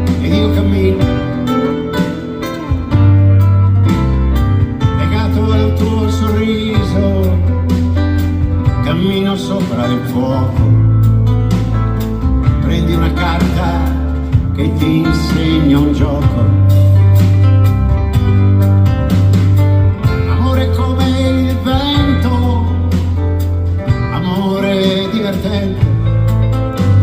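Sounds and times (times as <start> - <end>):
person singing: 0.0 - 2.2, 4.8 - 7.7, 8.7 - 11.0, 12.5 - 16.9, 20.0 - 23.2, 23.9 - 26.1
electric guitar: 0.0 - 27.0
steady bass line: 0.0 - 27.0.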